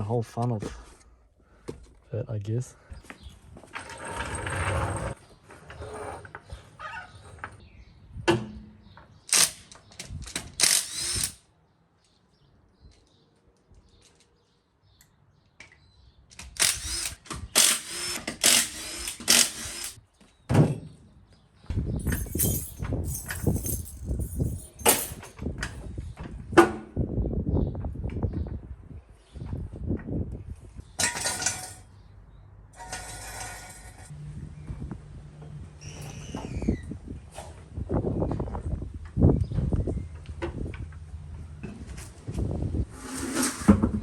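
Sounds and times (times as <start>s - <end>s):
metal tools clanking and rattling: 22.0s - 25.8s, 31.0s - 32.0s, 32.8s - 34.1s.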